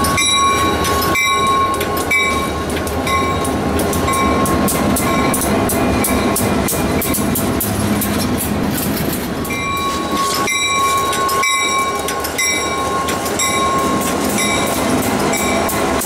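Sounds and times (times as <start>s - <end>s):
freight train passing: 0.0s - 16.0s
wheels clicking over rail joints: 0.0s - 16.0s
steady high tone: 9.5s - 15.9s.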